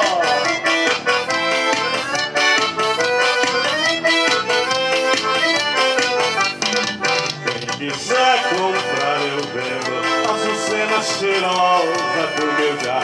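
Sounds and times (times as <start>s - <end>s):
accordion-led band playing: 0.0s - 13.0s
percussion beat: 4.2s - 13.0s.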